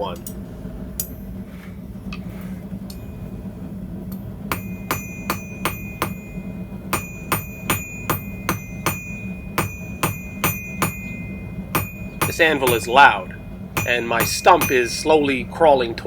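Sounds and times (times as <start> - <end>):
hammer striking anvil: 4.1 - 15.4
anvil ringing: 4.1 - 15.5.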